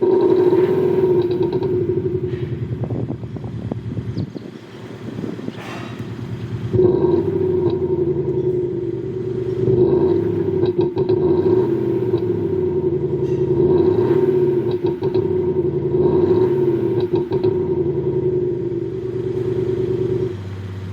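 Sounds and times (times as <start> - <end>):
car exhaust droning: 0.0 - 20.9.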